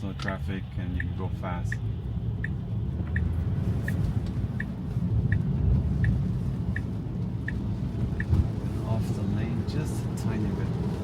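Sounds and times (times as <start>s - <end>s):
turn signal ticking: 0.0s - 8.8s
tyres rumbling on wet road: 0.0s - 11.0s.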